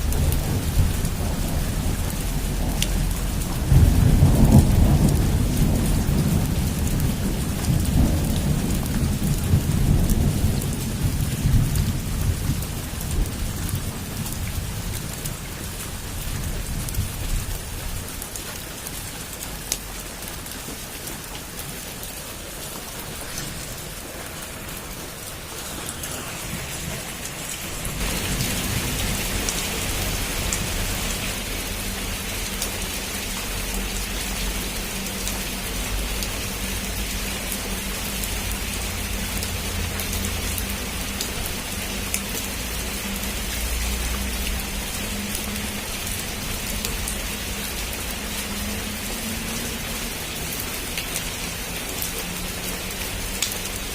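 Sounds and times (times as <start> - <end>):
thunder rolling: 0.0 - 14.9, 22.6 - 31.2
heavy rain on a roof: 0.0 - 53.9.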